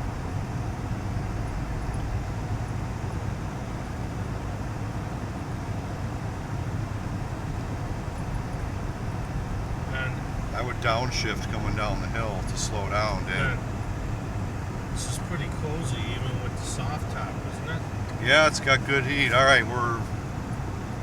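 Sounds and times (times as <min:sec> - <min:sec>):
road noise: 0:00.0 - 0:21.0
vehicle engine drone: 0:00.0 - 0:21.0.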